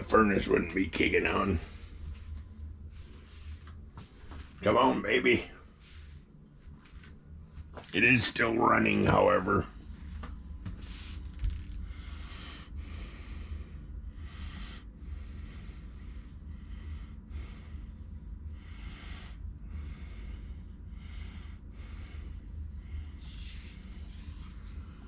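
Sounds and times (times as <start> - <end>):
steady low hum: 0.0 - 25.0
person breathing close: 10.8 - 25.0.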